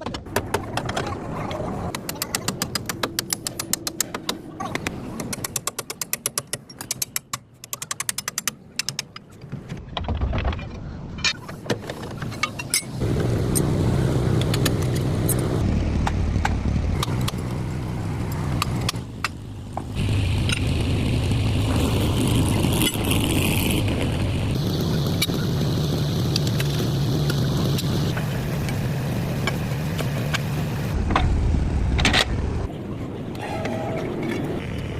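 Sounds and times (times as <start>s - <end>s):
vehicle engine running: 13.0s - 31.9s.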